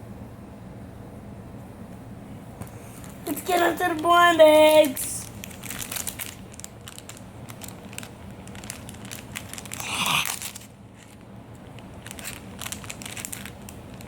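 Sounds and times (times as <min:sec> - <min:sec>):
foil bag crinkling: 0:02.9 - 0:14.0.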